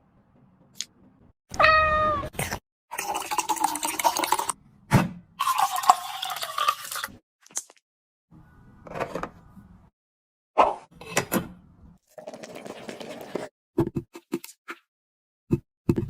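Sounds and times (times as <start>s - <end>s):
cat meowing: 1.5s - 2.4s.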